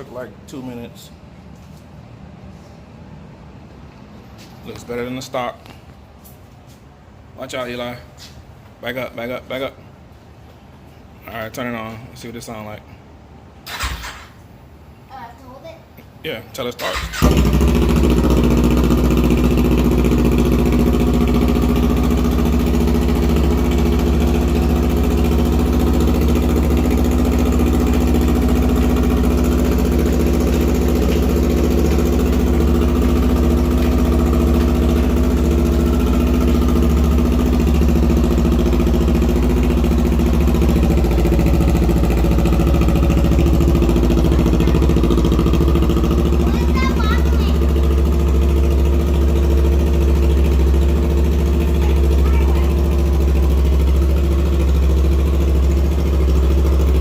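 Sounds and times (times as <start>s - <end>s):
motorcycle engine idling: 16.9s - 57.0s.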